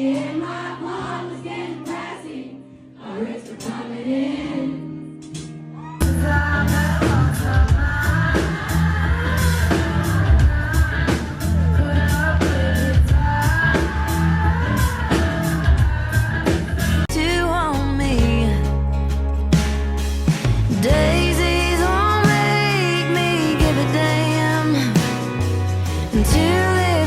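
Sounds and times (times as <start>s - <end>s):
drums and guitar: 5.2s - 27.0s
person singing: 5.8s - 18.9s, 20.7s - 27.0s.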